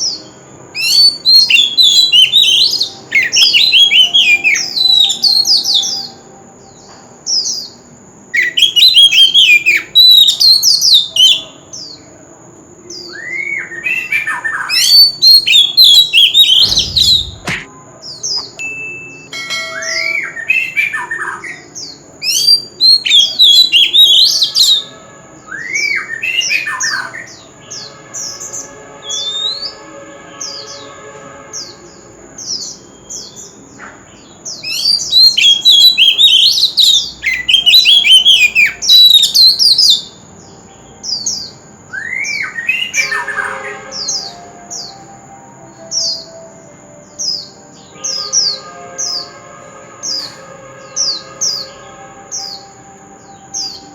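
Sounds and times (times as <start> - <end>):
bird singing: 0.0 - 53.9
steady thin high tone: 18.4 - 20.6.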